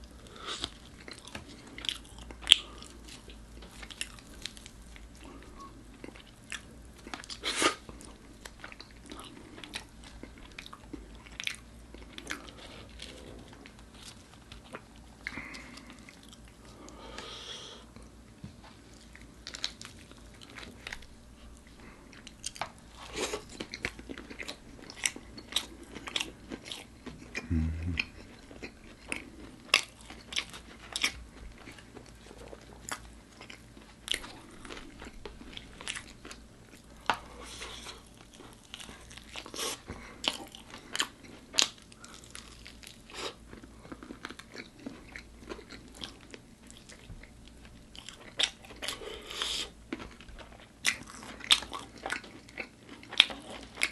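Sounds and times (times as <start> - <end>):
person chewing crunchy food: 0.0 - 53.9.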